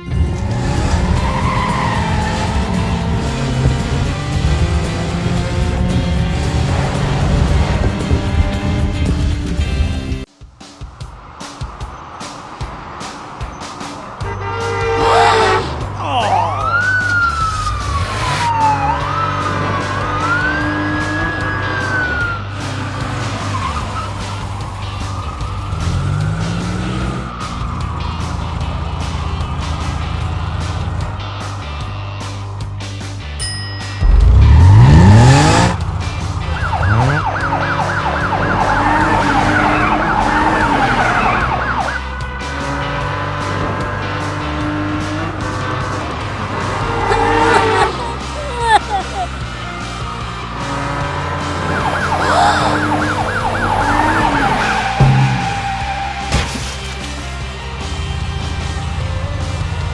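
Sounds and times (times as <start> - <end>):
car engine revving: 0.0 - 10.3, 17.1 - 33.2, 34.0 - 59.9
background music with bass: 0.0 - 59.9
tyres squealing: 0.7 - 3.0
police siren wailing: 14.4 - 29.7, 36.4 - 42.4, 46.4 - 56.3.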